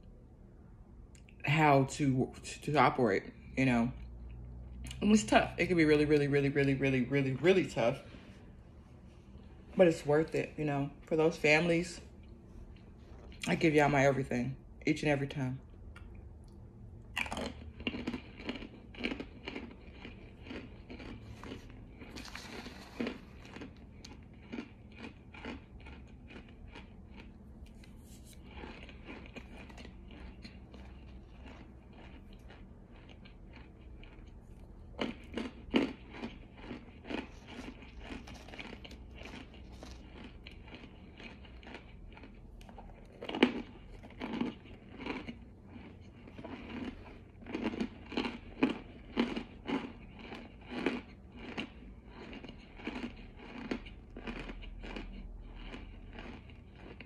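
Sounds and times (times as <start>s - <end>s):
person chewing crunchy food: 12.1s - 13.6s, 15.7s - 57.0s.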